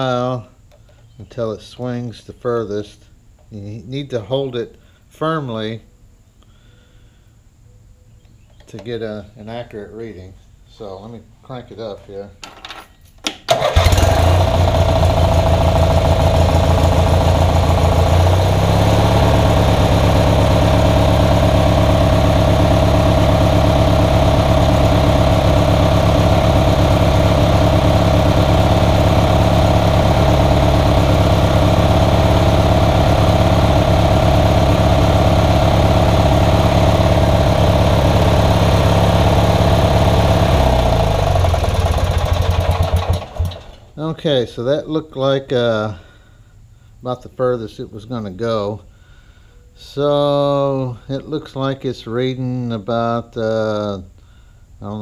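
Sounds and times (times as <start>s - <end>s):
lawnmower engine running: 13.5s - 44.0s.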